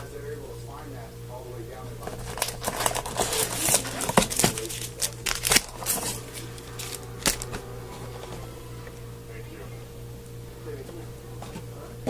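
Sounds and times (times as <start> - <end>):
plastic wrapper crinkling and tearing: 2.1 - 7.6.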